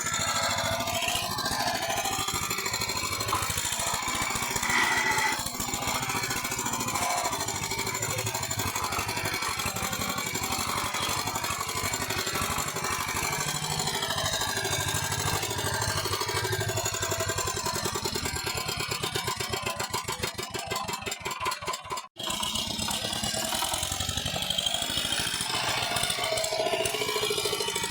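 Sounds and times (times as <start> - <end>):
tractor engine running: 0.0 - 16.3.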